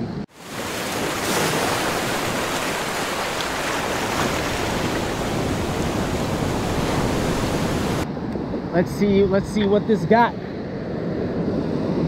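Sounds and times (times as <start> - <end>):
surf breaking on rocky shore: 0.3 - 8.0.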